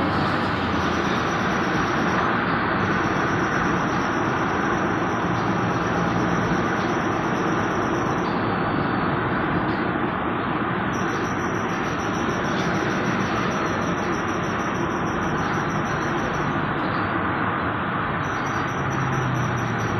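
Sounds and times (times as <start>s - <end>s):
brakes squealing: 0.0s - 19.9s
road noise: 0.0s - 19.9s.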